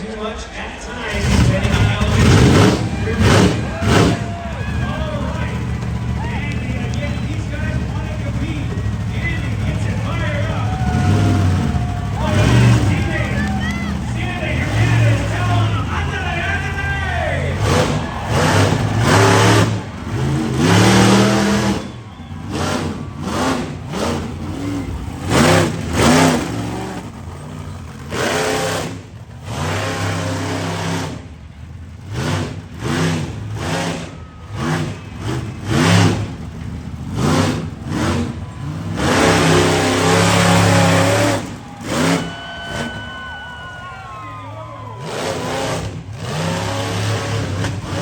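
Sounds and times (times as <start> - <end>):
monster truck engine revving: 0.0 - 48.0.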